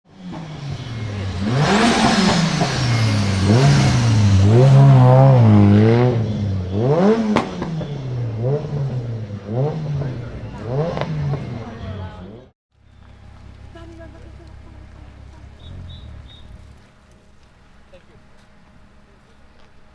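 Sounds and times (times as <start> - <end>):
car engine revving hard: 0.1 - 12.1, 14.8 - 17.0.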